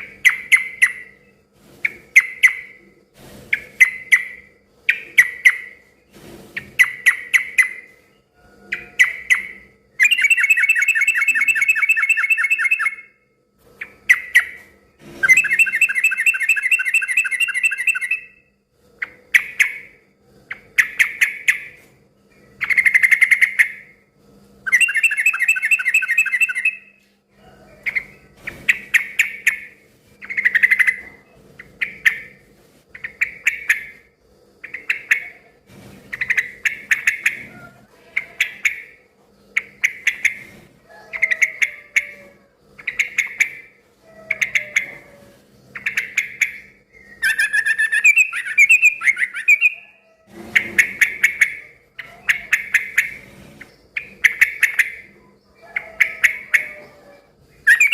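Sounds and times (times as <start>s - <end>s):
bird calling: 8.7s - 13.1s, 15.2s - 18.4s, 24.7s - 27.0s, 45.8s - 53.2s, 54.0s - 57.9s.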